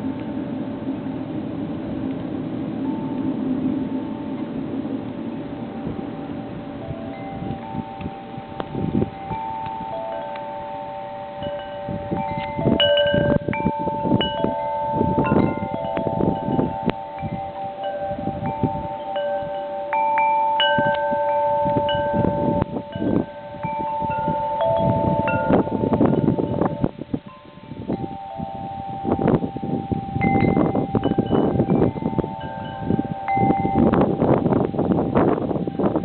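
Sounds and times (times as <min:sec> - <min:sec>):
wind buffeting microphone: 0:00.0 - 0:36.0
metal wind chimes ringing: 0:02.7 - 0:36.0.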